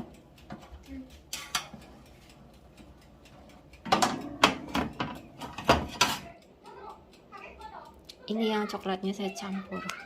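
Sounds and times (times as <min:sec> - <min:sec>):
kitchenware knocks and clicks: 0:03.8 - 0:06.3.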